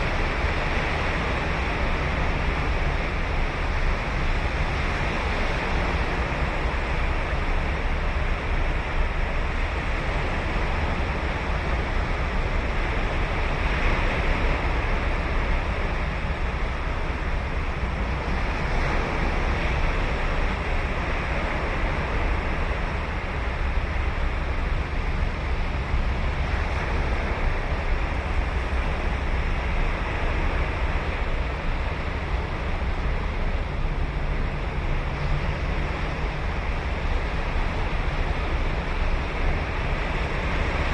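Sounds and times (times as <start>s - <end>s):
ocean surf breaking: 0.0s - 40.9s.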